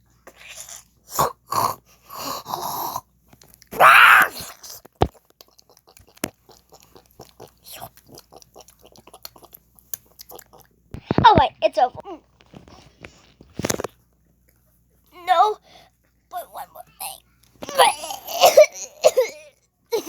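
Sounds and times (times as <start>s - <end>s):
mouth clicks and smacks: 3.4s - 11.2s
child crying out: 3.8s - 4.4s, 16.4s - 19.4s.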